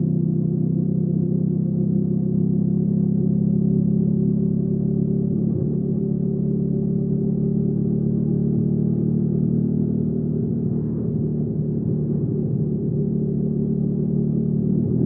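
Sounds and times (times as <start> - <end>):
motorcycle engine running steadily: 0.0 - 15.0.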